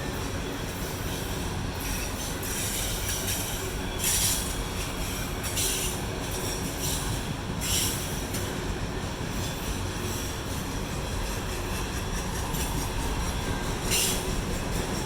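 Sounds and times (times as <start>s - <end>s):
freight train wheels rumbling: 0.0s - 15.0s
high wheel squeal: 11.8s - 15.0s.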